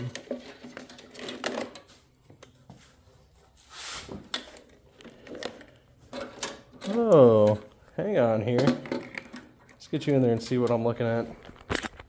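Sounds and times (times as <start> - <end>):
rustling scrapes: 0.2 - 4.4.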